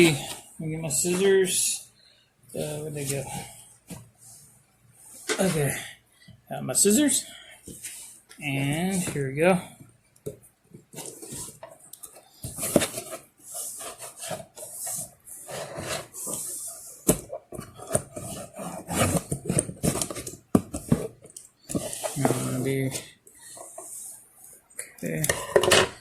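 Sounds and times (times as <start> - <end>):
cardboard scraping and rustling: 10.8 - 11.7, 12.4 - 24.0.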